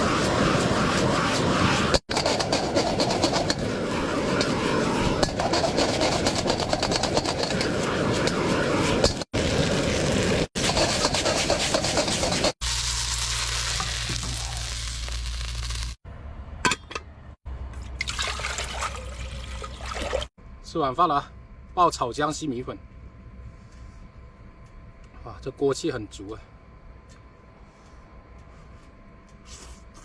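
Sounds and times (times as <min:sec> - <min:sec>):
spatula scraping a wok: 0:10.6 - 0:12.6
noodles sizzling in a wok: 0:10.6 - 0:16.0
steady hiss with low hum: 0:17.5 - 0:30.0.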